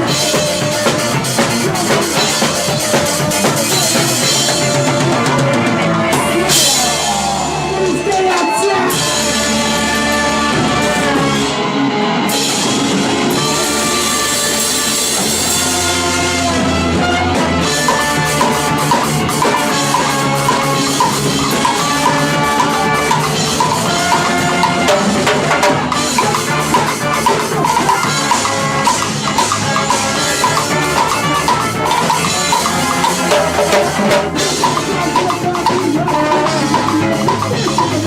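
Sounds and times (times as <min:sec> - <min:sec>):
ska-punk band playing live: 0:00.0 - 0:38.0
drum kit hits: 0:14.6 - 0:38.0.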